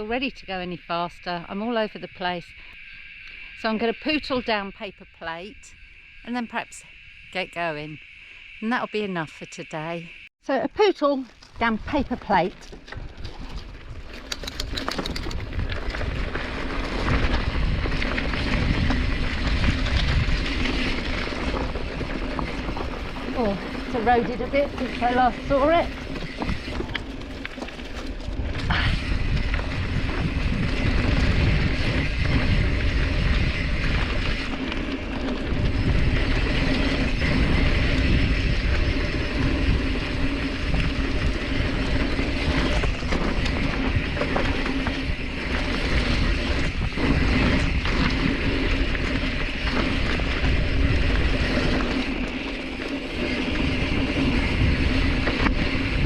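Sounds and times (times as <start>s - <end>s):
bike tyres rolling over dirt and rocks: 10.8s - 56.0s
bike clicks and knocks: 12.6s - 19.8s.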